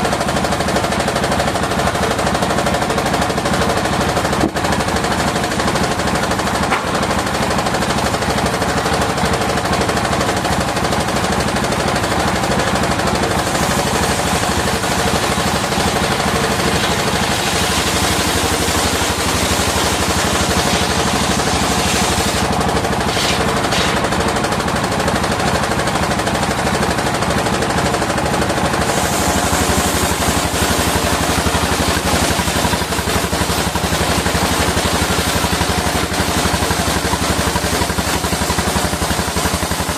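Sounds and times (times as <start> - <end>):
engine firing in rapid beat: 0.0 - 39.9
circular saw noise: 28.8 - 37.6.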